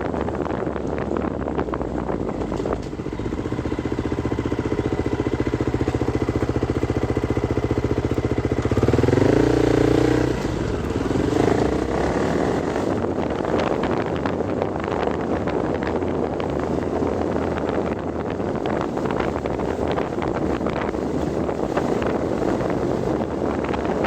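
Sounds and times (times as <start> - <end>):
wind noise on microphone: 0.0 - 24.0
vehicle engine revving: 4.0 - 13.2.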